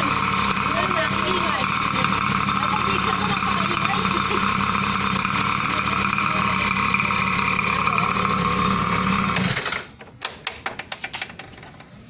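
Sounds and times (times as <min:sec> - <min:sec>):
small motorbike engine running: 0:00.0 - 0:09.8
faint clicks and knocks: 0:10.0 - 0:12.0.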